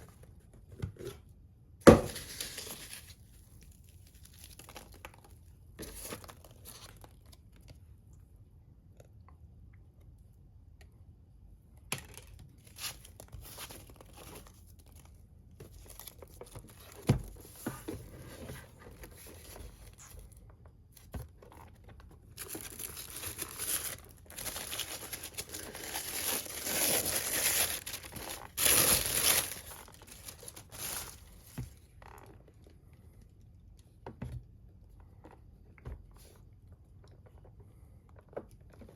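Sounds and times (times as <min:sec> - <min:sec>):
packaging crinkling and tearing: 0:02.0 - 0:07.7, 0:21.4 - 0:32.3.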